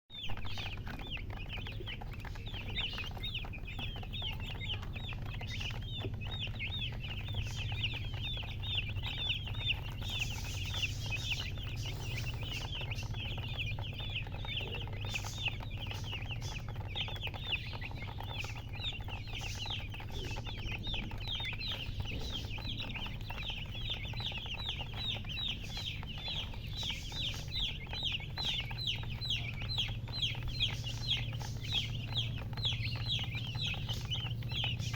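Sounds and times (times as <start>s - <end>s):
baby chicks peeping: 0.1s - 34.9s
steady low hum: 0.2s - 34.9s.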